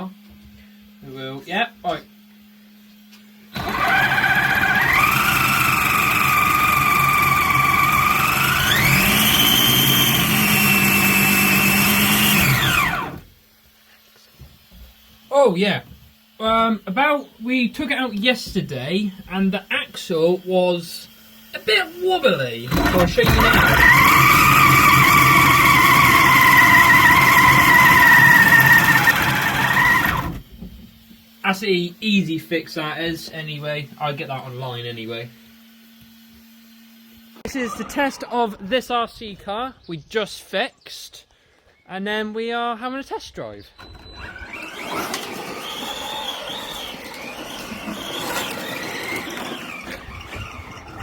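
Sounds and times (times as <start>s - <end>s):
toy car motor whining: 3.5s - 13.3s, 20.8s - 30.6s, 43.8s - 51.0s.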